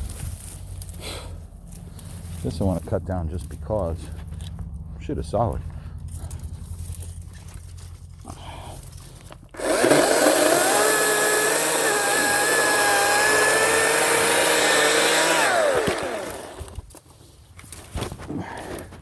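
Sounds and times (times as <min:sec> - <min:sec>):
electric chainsaw motor whining: 0:09.5 - 0:16.9
chain cutting wood: 0:09.5 - 0:17.0.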